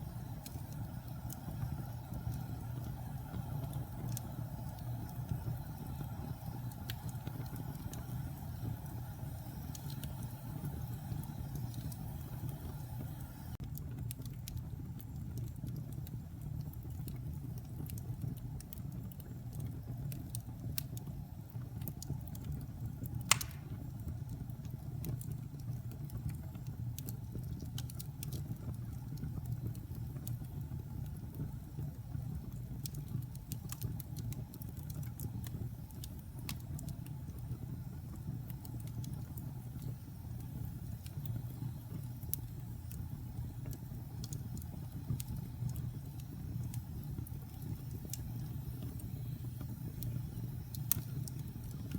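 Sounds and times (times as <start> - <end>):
logs burning in fireplace: 0.0 - 51.9
loud wood pop: 23.3 - 23.8.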